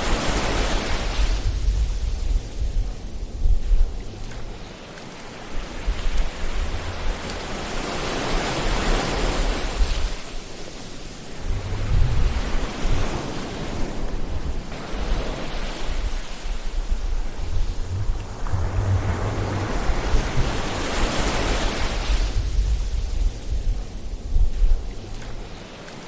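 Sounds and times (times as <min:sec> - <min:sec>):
ocean waves washing in: 0:00.0 - 0:26.0
gusty low rumble: 0:11.3 - 0:25.6.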